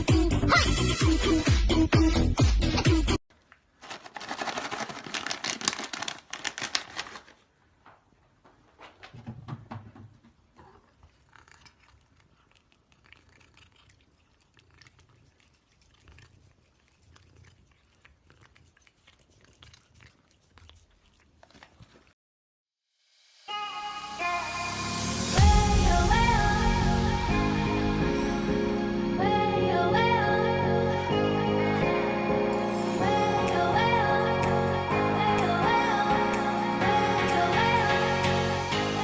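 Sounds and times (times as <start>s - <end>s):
pet chewing crunchily: 3.8s - 7.3s, 10.6s - 22.2s.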